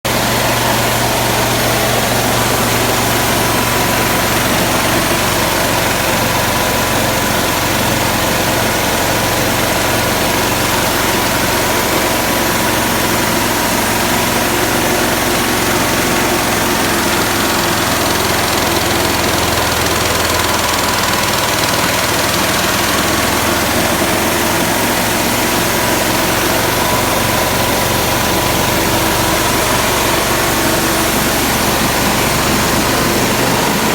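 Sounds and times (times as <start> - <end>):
petrol engine running: 0.0 - 33.9.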